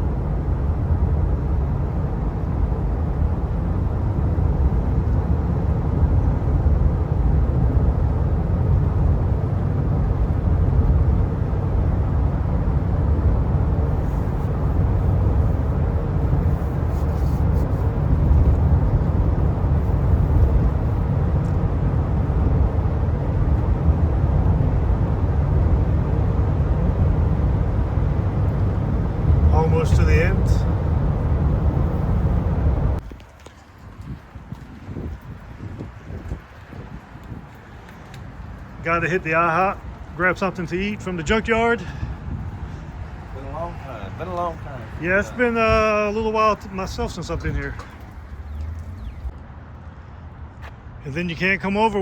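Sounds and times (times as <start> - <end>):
road and engine rumble in truck cab: 0.0 - 52.0.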